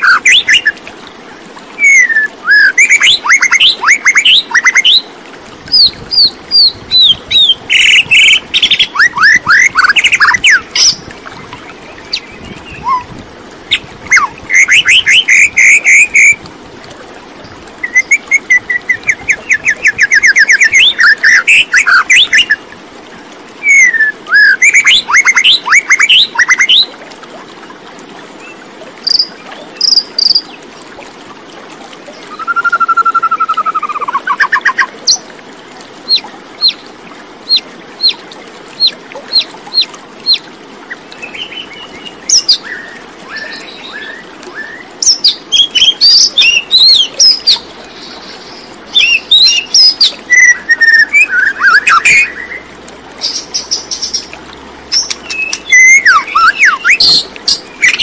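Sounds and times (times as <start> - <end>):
birds chirping and singing: 54.9 - 58.0.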